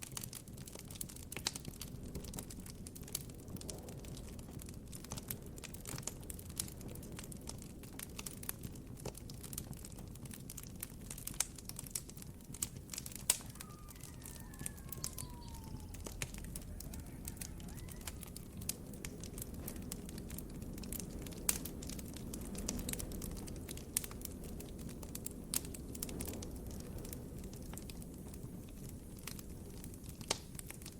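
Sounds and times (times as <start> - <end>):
campfire crackling: 0.0 - 30.9
distant bird or animal calls: 13.4 - 18.6.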